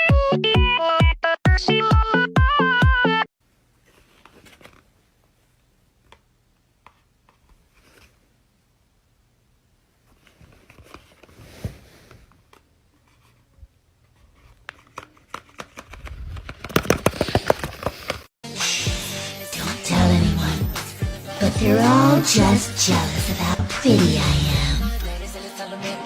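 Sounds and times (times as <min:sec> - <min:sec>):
paper rustling: 0:03.8 - 0:05.0, 0:06.8 - 0:08.2, 0:10.0 - 0:18.3.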